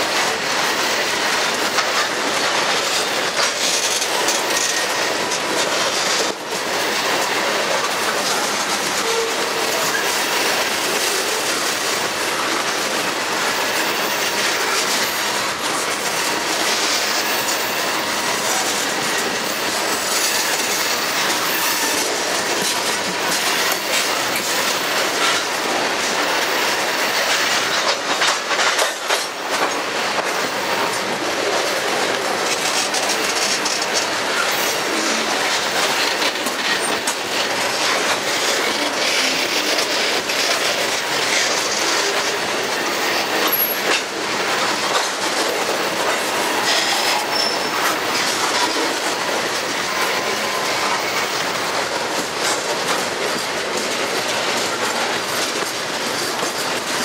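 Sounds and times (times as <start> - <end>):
freight train wheels rumbling on rail: 0.0 - 57.0
train cars clattering: 0.0 - 57.0.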